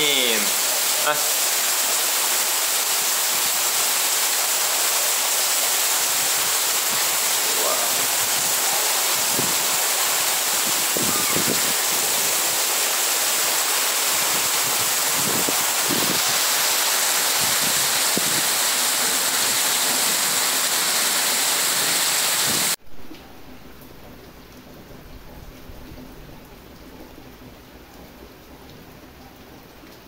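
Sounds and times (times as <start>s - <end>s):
heavy rain hissing: 0.0s - 22.8s.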